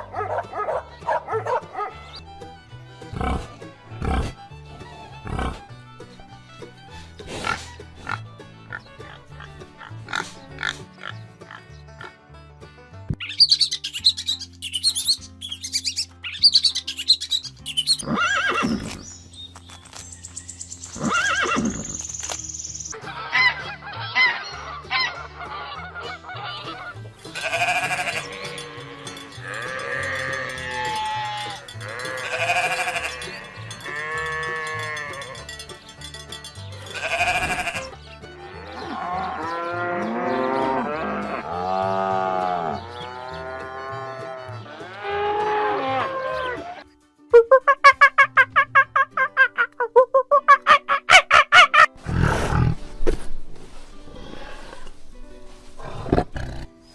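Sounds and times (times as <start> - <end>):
background music: 0.0 - 56.9
farm animals calling: 7.4 - 12.2, 13.2 - 19.1, 20.9 - 46.9, 47.7 - 52.8.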